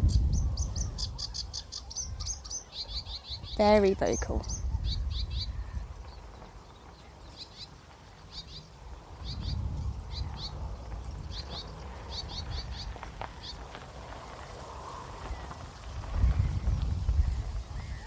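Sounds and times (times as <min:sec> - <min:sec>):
reed warbler singing: 0:00.0 - 0:13.8
wind rumbling on microphone: 0:00.0 - 0:18.0.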